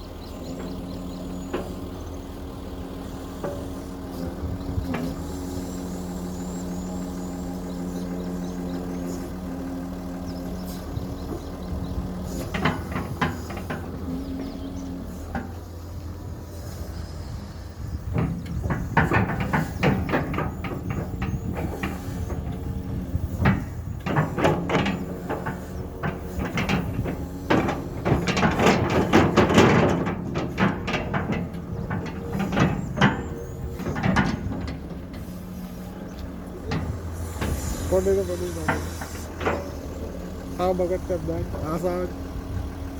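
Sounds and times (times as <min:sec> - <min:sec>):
excavator engine running: 0:00.0 - 0:42.9
excavator bucket knocks and scrapes: 0:00.4 - 0:05.3, 0:10.1 - 0:16.3, 0:17.9 - 0:40.6.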